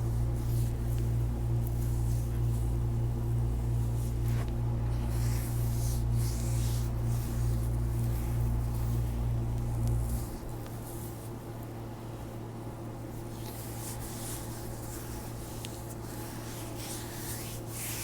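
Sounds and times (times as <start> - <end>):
low electrical hum: 0.0 - 18.0
hands rubbing bare foot: 4.1 - 11.3, 13.2 - 18.0.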